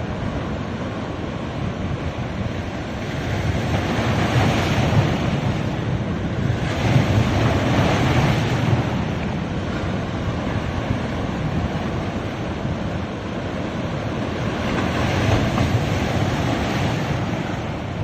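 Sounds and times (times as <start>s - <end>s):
waves breaking on a beach: 0.0s - 18.0s.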